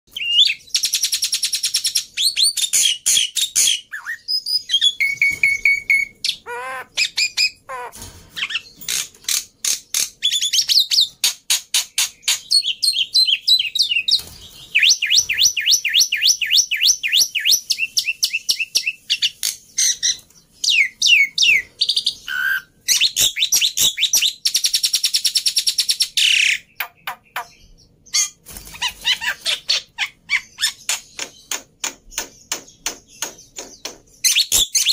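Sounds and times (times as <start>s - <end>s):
harsh rasping bird calls: 2.4s - 24.3s.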